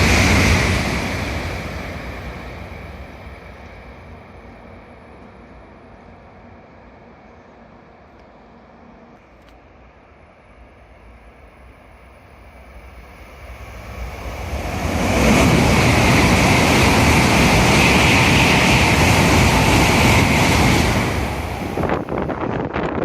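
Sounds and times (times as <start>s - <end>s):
high-speed train passing: 0.0s - 23.0s
wind buffeting microphone: 14.1s - 23.0s.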